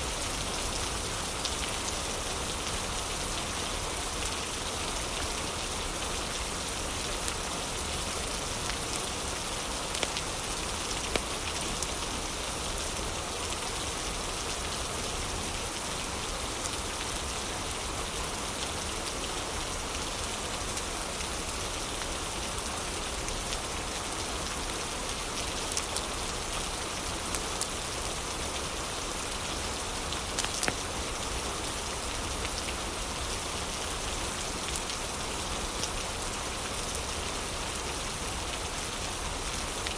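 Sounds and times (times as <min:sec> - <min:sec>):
heavy rain: 0:00.0 - 0:39.9
wood fire crackling: 0:30.4 - 0:30.8.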